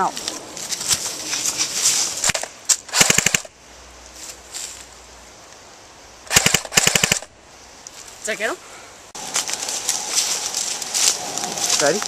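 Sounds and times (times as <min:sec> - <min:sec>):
airsoft rifle full-auto bursts: 0:02.3 - 0:03.5, 0:06.3 - 0:07.3.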